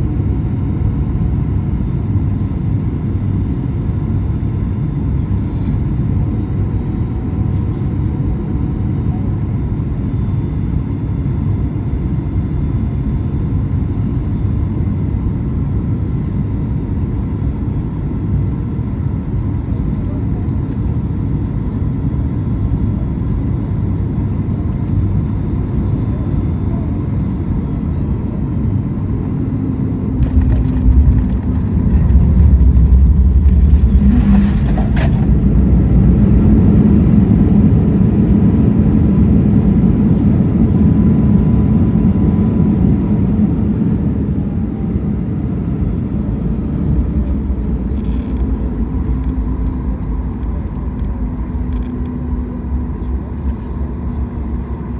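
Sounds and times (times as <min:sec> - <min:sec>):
airplane cabin rumble: 0:00.0 - 0:54.9
wheels touching down thumps: 0:30.2 - 0:35.8.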